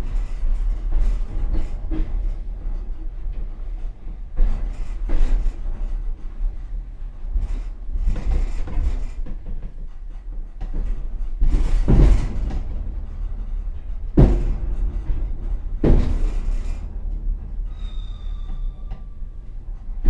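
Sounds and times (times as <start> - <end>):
train car rumbling: 0.0 - 20.0
heavy clanking knocks: 8.0 - 20.0.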